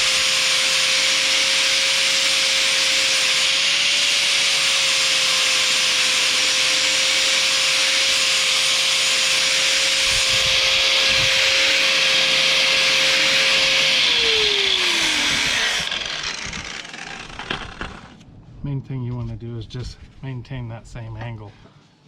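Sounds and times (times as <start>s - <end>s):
angle grinder grinding steel: 0.0s - 18.2s
grinder spinning down: 0.0s - 18.2s.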